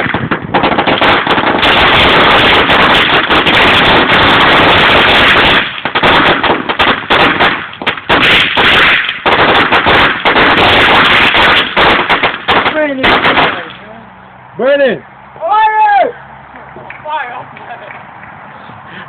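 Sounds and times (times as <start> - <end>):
fireworks bangs and crackles: 0.0 - 13.8.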